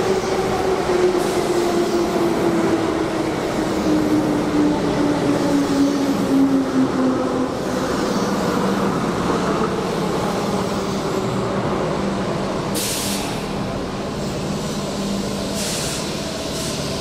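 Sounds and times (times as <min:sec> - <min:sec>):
short hiss of air: 0:12.8 - 0:13.6, 0:15.6 - 0:16.9.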